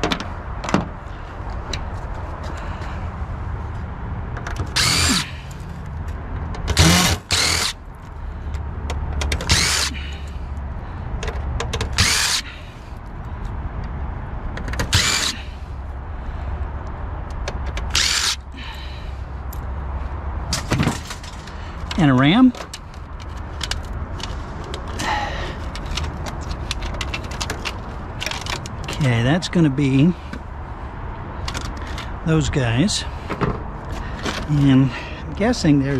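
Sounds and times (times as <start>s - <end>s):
cordless drill running in bursts: 4.7s - 5.3s, 6.8s - 7.8s, 9.5s - 9.9s, 12.0s - 12.4s, 14.9s - 15.4s, 17.9s - 18.4s.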